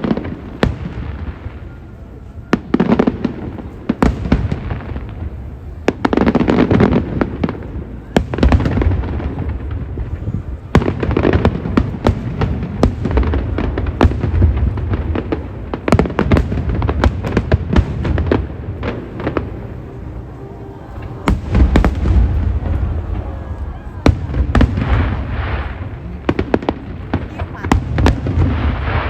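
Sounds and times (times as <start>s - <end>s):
fireworks bangs and crackles: 0.0s - 29.0s
low rumble: 18.4s - 27.2s.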